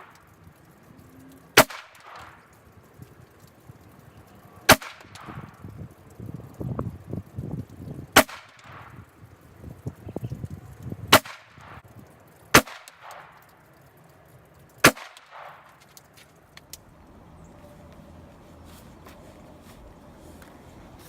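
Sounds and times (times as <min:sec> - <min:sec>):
pistol shots with echo: 0:01.6 - 0:02.4, 0:04.7 - 0:05.5, 0:08.2 - 0:09.0, 0:11.1 - 0:11.8, 0:12.6 - 0:13.4, 0:14.8 - 0:15.7.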